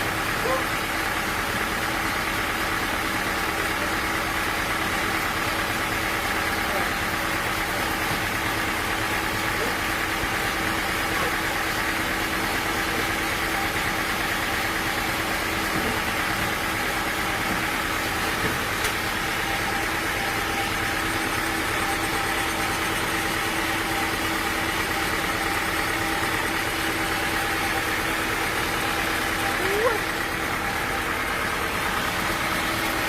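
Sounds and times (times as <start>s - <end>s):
sawmill machinery drone: 0.0s - 33.0s.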